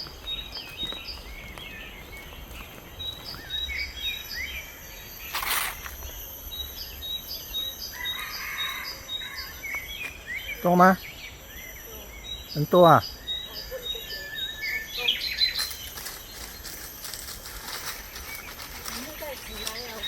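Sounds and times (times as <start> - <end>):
rustle: 0.0 - 6.5, 13.5 - 20.0
birds chirping: 0.0 - 20.0
high drone of insects: 0.0 - 20.0.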